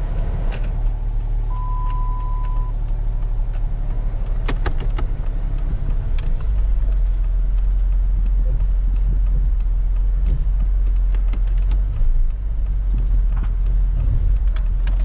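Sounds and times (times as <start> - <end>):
car engine rumbling: 0.0 - 15.0
sharp clicks: 0.5 - 15.0
electronic beep: 1.5 - 2.8.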